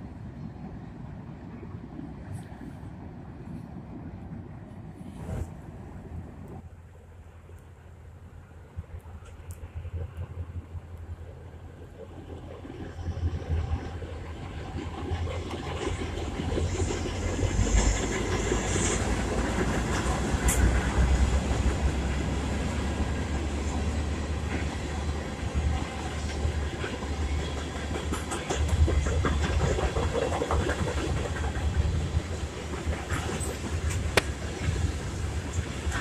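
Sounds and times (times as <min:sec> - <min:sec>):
diesel locomotive passing: 0:00.0 - 0:36.0
wheels clicking over rail joints: 0:25.7 - 0:36.0.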